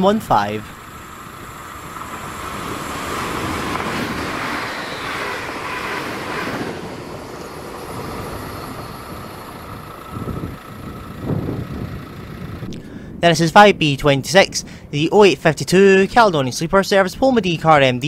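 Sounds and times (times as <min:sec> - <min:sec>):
train wheel and rail noise: 0:00.0 - 0:12.7.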